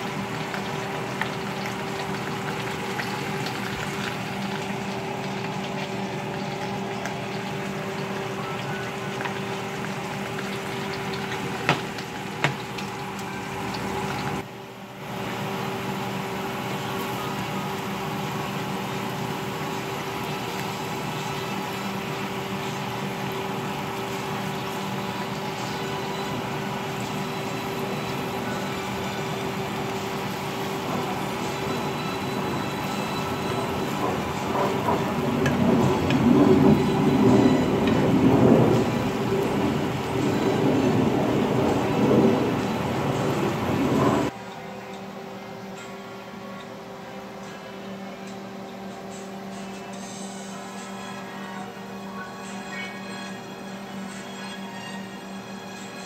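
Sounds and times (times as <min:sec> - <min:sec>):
slices frying in oil: 0:00.0 - 0:14.5, 0:15.1 - 0:44.3.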